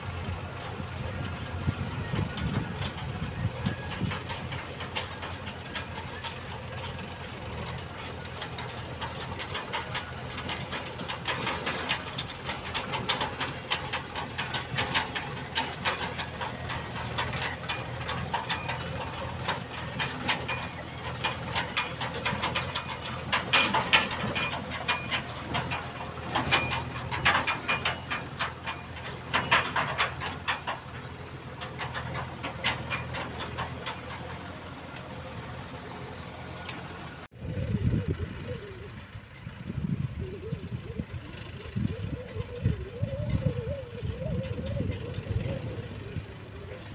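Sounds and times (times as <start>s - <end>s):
diesel earthmoving machinery running: 0.0s - 46.9s
clattering and rattling: 0.6s - 37.0s.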